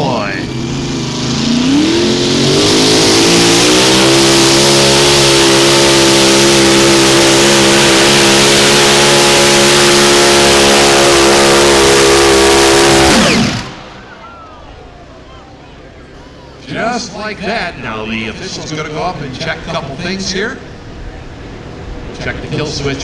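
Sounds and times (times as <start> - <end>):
tractor engine at full throttle: 0.0 - 15.2.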